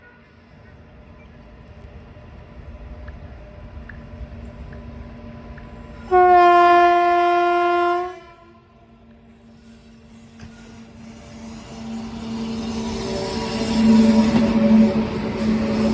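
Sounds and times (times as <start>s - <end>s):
train rumble: 0.0s - 15.9s
train horn blast: 6.0s - 8.8s.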